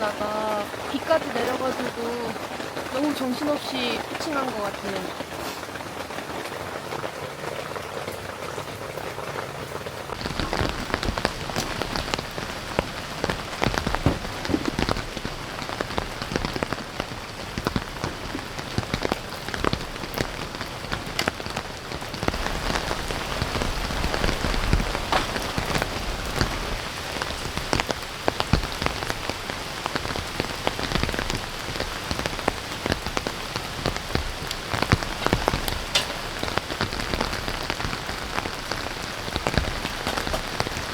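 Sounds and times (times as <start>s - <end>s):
heavy rain: 0.0s - 40.9s
raindrops ticking on a surface: 0.0s - 40.9s.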